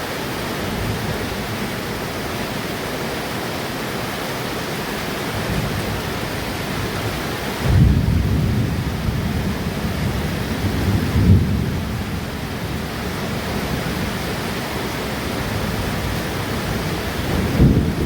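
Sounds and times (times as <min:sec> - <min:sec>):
heavy rain: 0:00.0 - 0:18.0
thunder rumbling: 0:05.4 - 0:18.0.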